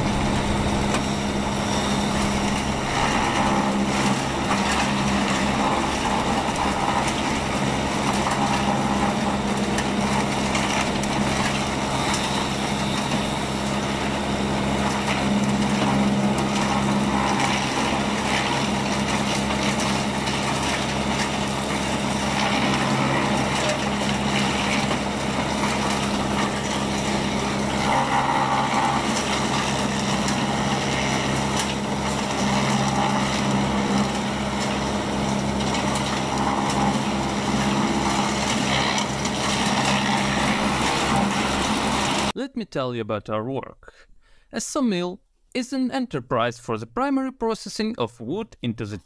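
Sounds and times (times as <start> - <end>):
sawmill machinery running: 0.0 - 42.4.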